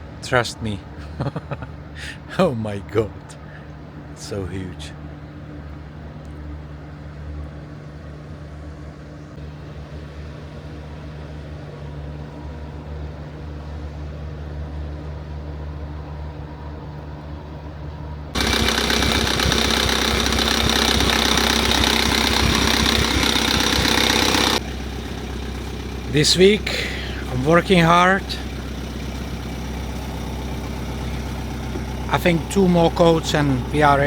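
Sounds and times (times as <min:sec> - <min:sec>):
ship engines droning: 0:00.0 - 0:34.0
harsh rushing noise: 0:18.4 - 0:24.6.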